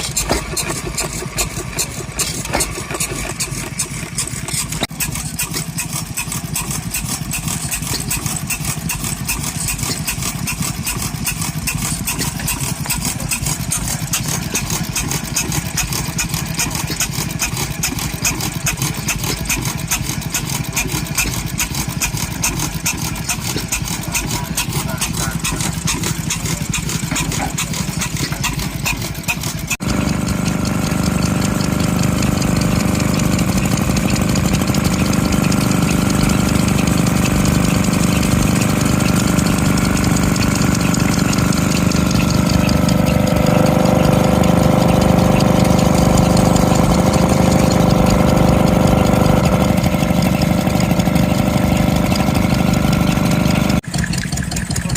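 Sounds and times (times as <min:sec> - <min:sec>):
stationary engine running: 0:00.0 - 0:54.9.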